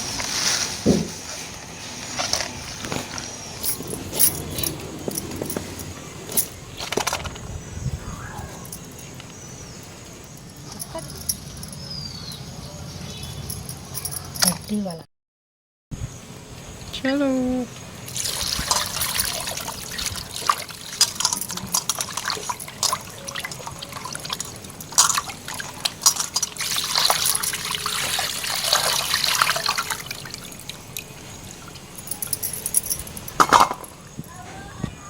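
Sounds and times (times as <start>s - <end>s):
water splashing and dripping: 18.1s - 33.7s.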